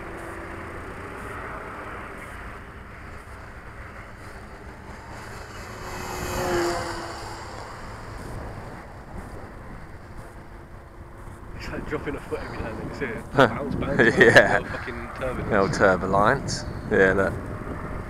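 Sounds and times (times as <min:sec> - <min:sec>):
model plane motor humming: 0:00.0 - 0:11.0.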